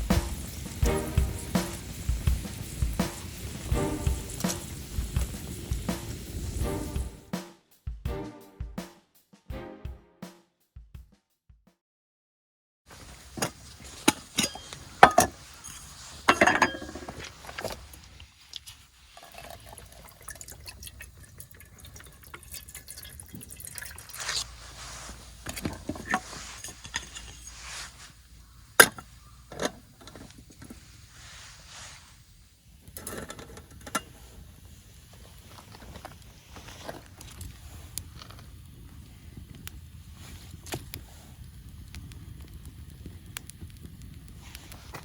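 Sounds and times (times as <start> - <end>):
cookware and utensils clinking: 14.0 - 17.8
liquid being poured: 18.5 - 24.4.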